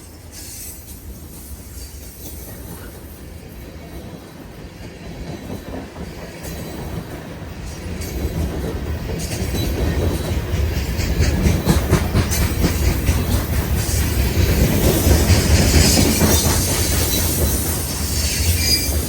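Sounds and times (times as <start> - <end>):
train rumble: 0.0 - 19.0
train wheel clicks: 5.0 - 19.0.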